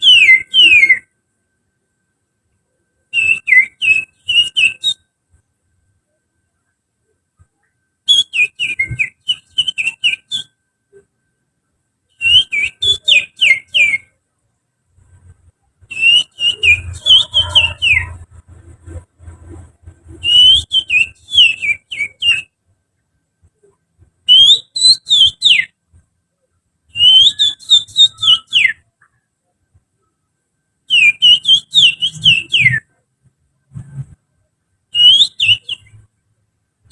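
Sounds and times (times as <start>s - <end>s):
finger whistling birdsong: 0.0s - 1.1s, 3.1s - 5.0s, 7.5s - 11.0s, 12.1s - 14.1s, 15.9s - 18.2s, 20.1s - 22.6s, 24.2s - 25.8s, 26.9s - 29.1s, 30.9s - 33.0s, 34.9s - 36.0s.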